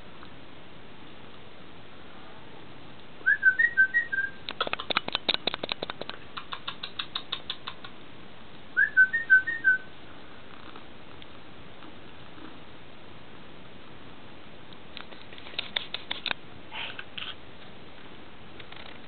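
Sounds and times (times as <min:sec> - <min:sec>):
songbird whistling: 0:03.2 - 0:04.4, 0:08.8 - 0:09.9
rapid dry clicks: 0:04.5 - 0:08.0, 0:15.0 - 0:16.4.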